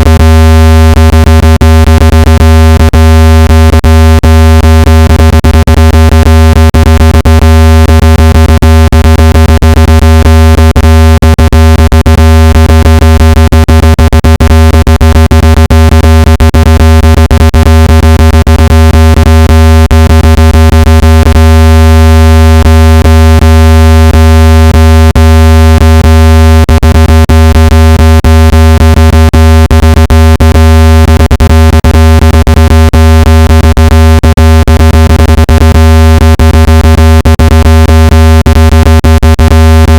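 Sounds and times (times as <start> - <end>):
synthesized low buzzing tone: 0.0 - 39.9.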